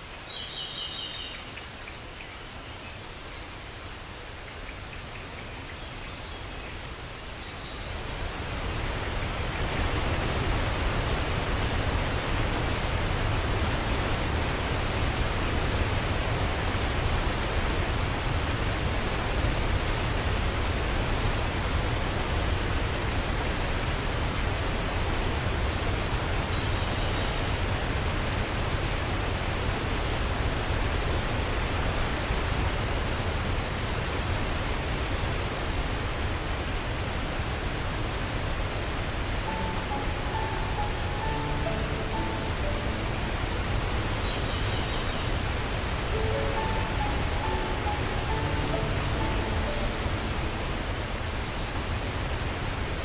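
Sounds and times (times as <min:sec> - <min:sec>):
waterfall rushing: 0:05.6 - 0:33.5, 0:34.1 - 0:53.0.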